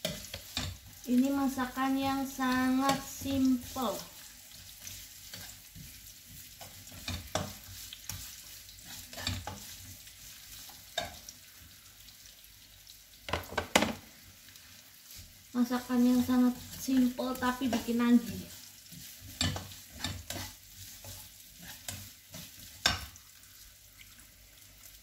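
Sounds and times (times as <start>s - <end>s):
spatula scraping a wok: 0.0s - 1.0s, 1.8s - 11.3s, 16.0s - 23.2s
shallots sizzling in hot oil: 0.0s - 25.0s.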